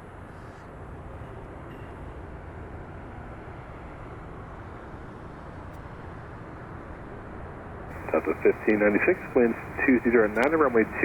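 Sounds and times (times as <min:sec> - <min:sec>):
jet engines rumbling: 0:07.9 - 0:11.0.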